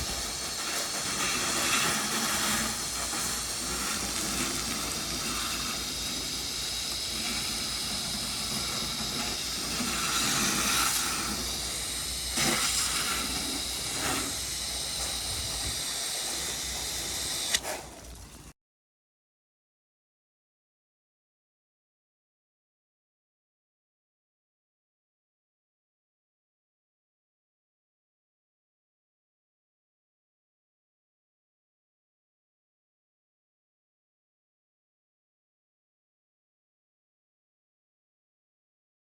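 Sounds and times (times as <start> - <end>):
pressure washer spray hissing: 0.0 - 18.1.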